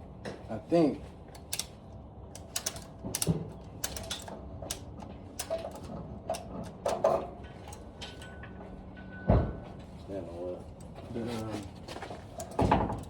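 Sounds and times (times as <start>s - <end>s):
metallic clicks of tools: 1.3s - 1.7s, 2.3s - 8.4s.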